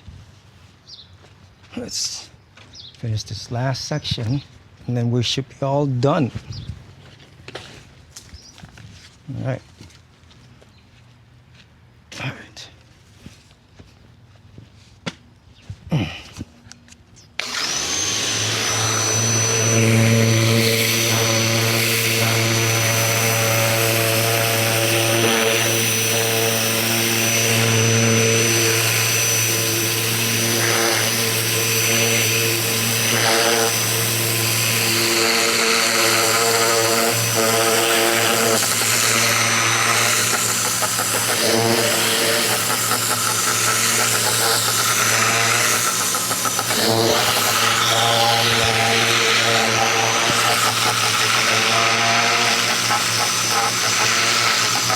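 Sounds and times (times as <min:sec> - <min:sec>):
electric pressure washer running: 0:17.4 - 0:54.9.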